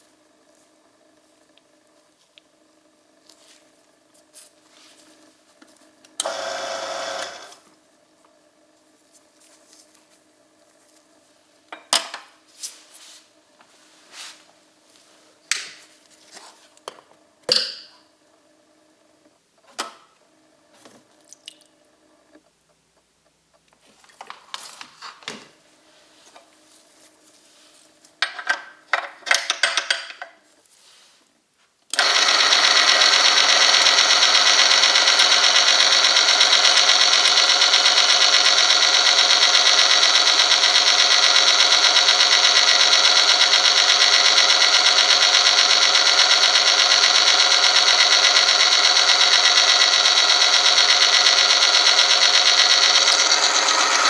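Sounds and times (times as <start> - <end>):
machine running loud and steady: 6.2 - 7.7, 32.0 - 54.0.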